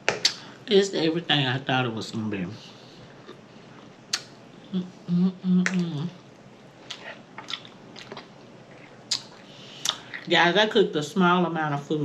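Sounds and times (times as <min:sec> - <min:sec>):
lip smacks: 0:00.1 - 0:00.4, 0:04.1 - 0:04.4, 0:05.6 - 0:10.3
person humming: 0:04.7 - 0:06.1
wet chewing: 0:06.3 - 0:10.3.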